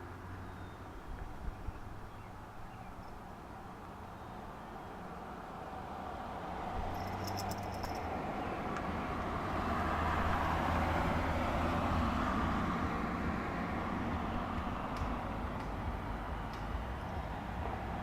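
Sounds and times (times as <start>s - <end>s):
vehicle passing: 5.6s - 18.0s
rapid high ticks: 14.9s - 15.8s.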